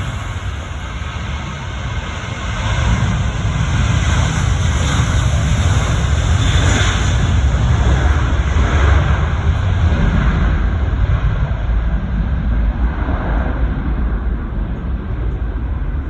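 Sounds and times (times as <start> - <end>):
jet airliner taking off: 0.0 - 16.0.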